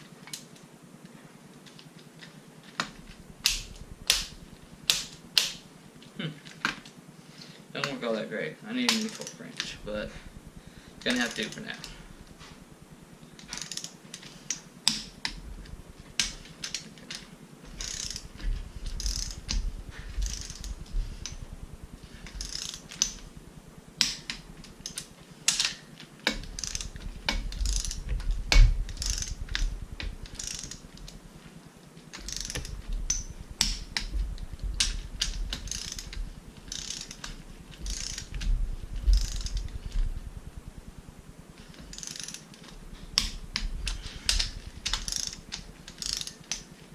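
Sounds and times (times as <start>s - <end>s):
torque wrench ratchet clicking: 3.4s - 5.7s, 13.4s - 23.4s, 24.0s - 31.2s, 32.1s - 40.8s, 41.6s - 46.7s.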